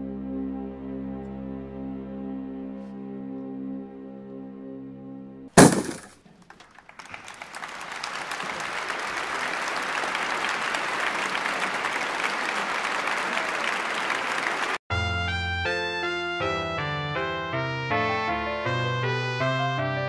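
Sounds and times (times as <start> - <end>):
toy hitting carpet: 5.6 - 6.1
applause: 6.4 - 14.8.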